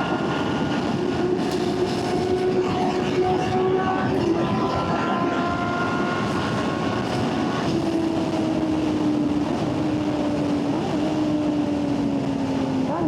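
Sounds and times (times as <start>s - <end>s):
wind noise: 0.0s - 13.0s.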